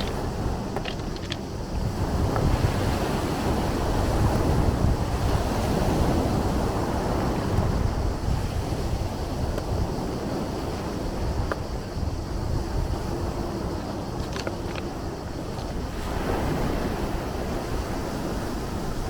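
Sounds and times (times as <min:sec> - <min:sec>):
sea waves washing: 0:00.0 - 0:01.8.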